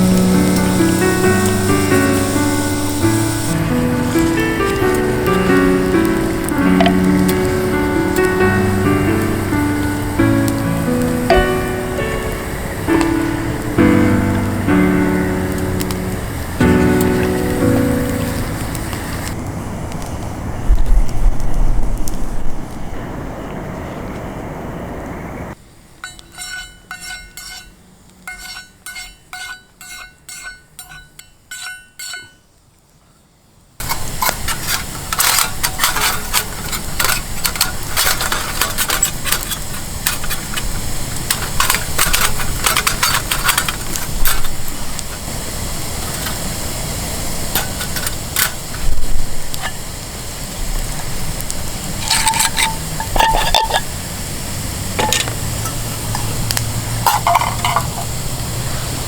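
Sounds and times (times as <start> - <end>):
meat sizzling on griddle: 0.0 - 19.4, 33.8 - 59.0
metal scrapes and clicks: 26.0 - 32.4, 33.8 - 40.7, 41.3 - 44.5.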